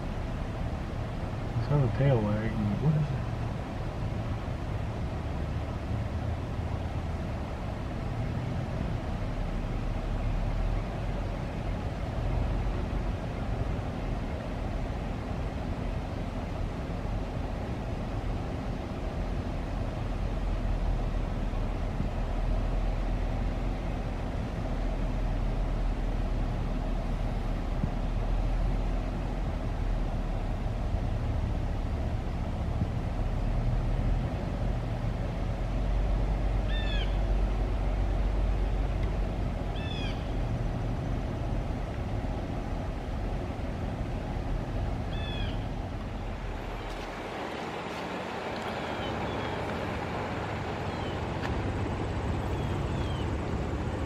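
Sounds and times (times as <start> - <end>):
low rumble: 20.6 - 54.0
bird calls: 36.6 - 37.3, 39.7 - 40.4, 45.0 - 45.8, 48.6 - 49.8, 50.8 - 51.4, 52.4 - 53.4.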